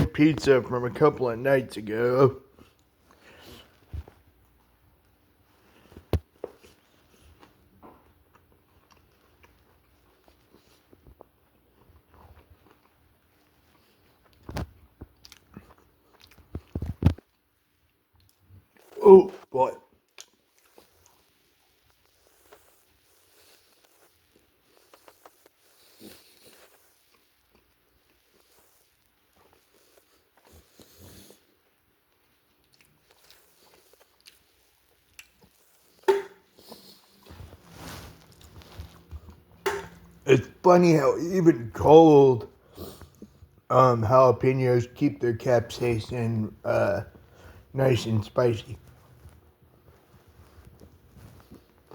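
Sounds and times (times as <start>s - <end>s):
person biting and chewing pizza: 5.8s - 40.6s.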